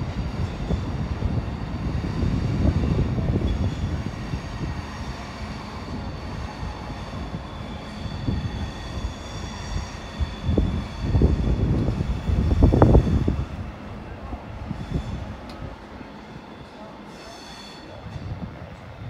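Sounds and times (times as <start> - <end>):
train rumbling over tracks: 0.0 - 19.0
faint wheel squeal: 3.4 - 11.5, 16.2 - 18.3.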